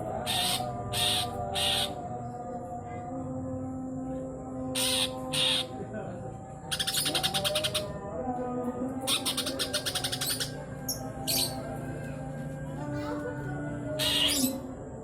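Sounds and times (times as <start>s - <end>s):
bird chattering: 4.8s - 5.7s.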